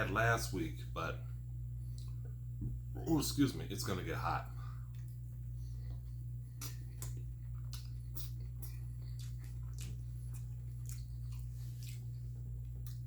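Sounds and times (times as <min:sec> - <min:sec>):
low hum: 0:00.0 - 0:13.0
person chewing food: 0:04.8 - 0:13.0.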